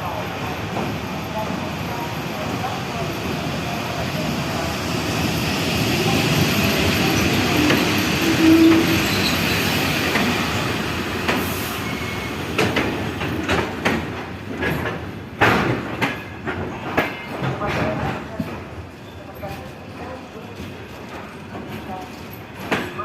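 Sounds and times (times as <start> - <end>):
train wheels rumbling on rail: 0.0 - 23.0
wheel squeal: 7.2 - 9.8.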